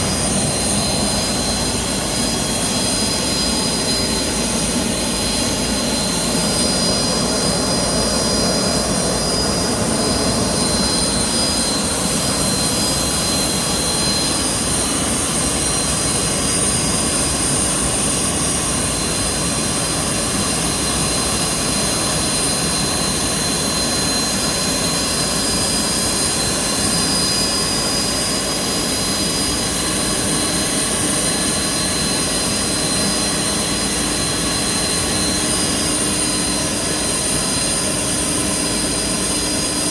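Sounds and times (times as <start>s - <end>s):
high whining tones: 0.0s - 19.9s
gas turbine running: 0.0s - 39.9s.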